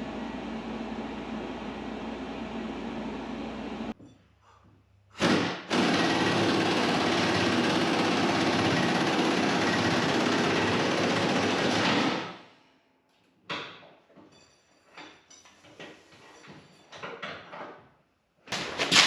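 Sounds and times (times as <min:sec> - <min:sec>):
loud steady mechanical noise: 0:00.0 - 0:04.0, 0:05.2 - 0:12.4
small knocks and clanks: 0:13.1 - 0:19.0.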